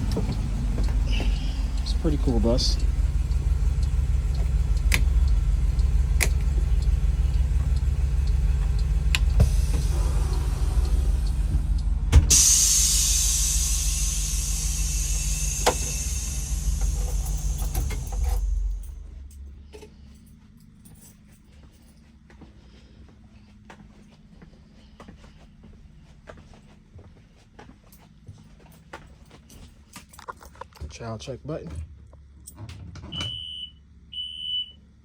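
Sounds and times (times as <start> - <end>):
bus engine idling: 0.0 - 20.4
air release hiss: 12.3 - 18.5.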